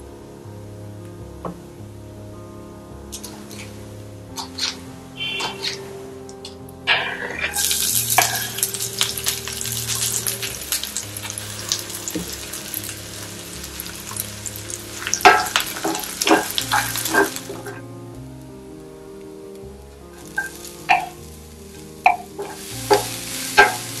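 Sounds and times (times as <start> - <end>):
garlic sizzling in hot oil: 7.0 - 17.8, 20.1 - 24.0.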